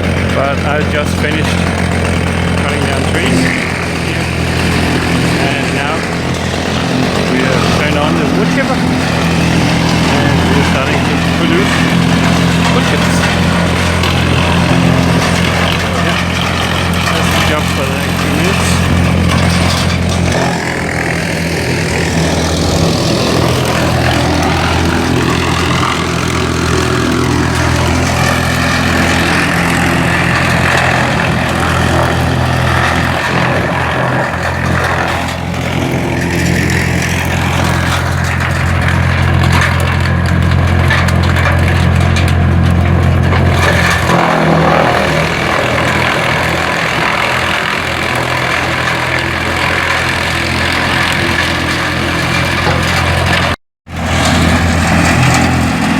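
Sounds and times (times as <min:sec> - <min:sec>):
tractor engine humming: 0:00.0 - 0:55.9
wood chipper noise: 0:00.0 - 0:55.9.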